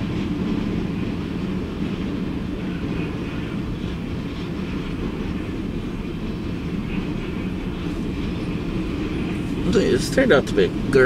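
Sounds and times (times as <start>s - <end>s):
freight train wheels rumbling on rails: 0.0s - 11.0s.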